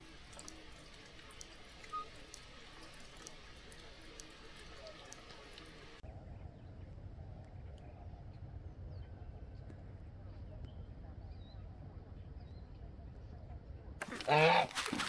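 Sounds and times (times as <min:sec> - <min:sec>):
small ticks: 0:00.0 - 0:06.0
low rumbling background: 0:06.0 - 0:14.0.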